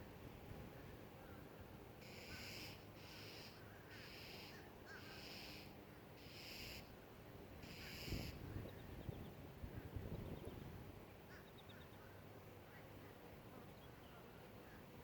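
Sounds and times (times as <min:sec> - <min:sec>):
faint harsh bird call: 0:02.0 - 0:06.9, 0:07.6 - 0:08.9, 0:11.2 - 0:13.1.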